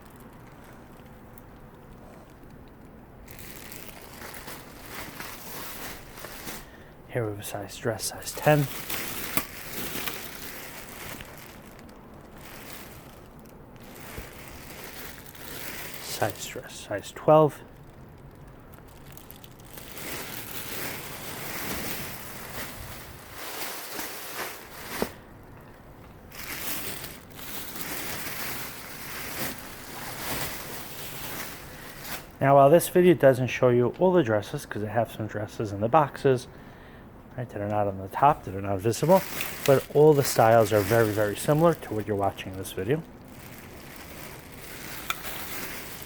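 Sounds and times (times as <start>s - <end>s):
rustling of dresses: 3.2s - 33.0s, 38.2s - 46.0s.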